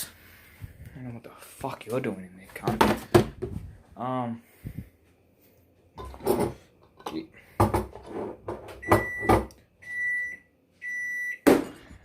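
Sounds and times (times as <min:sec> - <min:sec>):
jars and bottles clattering: 0:06.0 - 0:09.5
fridge door alarm beeping: 0:08.7 - 0:11.8.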